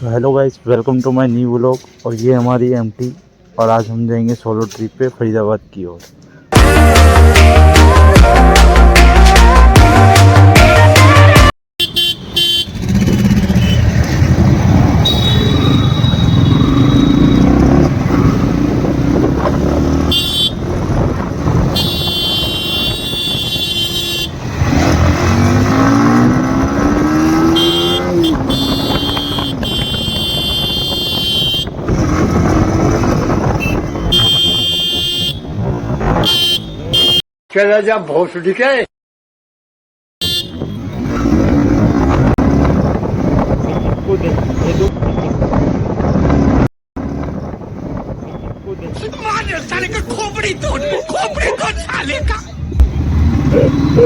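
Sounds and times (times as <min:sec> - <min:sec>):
vehicle horns honking: 0:11.8 - 0:12.9, 0:13.5 - 0:13.9, 0:15.0 - 0:17.6, 0:20.0 - 0:20.7, 0:21.7 - 0:24.4, 0:27.2 - 0:31.8, 0:33.5 - 0:35.6, 0:36.2 - 0:37.2, 0:40.2 - 0:40.9
motorcycle engine revving: 0:12.4 - 0:37.2, 0:40.4 - 0:44.9, 0:52.5 - 0:54.0.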